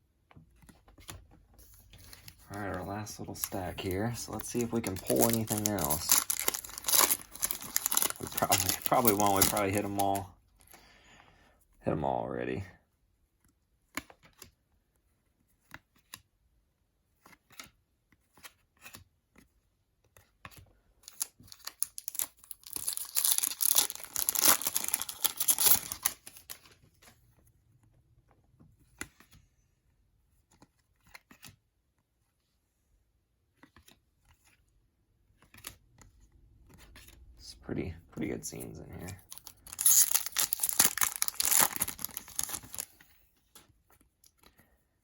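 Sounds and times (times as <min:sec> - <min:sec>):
wrapper tearing open: 0:03.4 - 0:10.2, 0:21.1 - 0:26.6, 0:39.2 - 0:42.9.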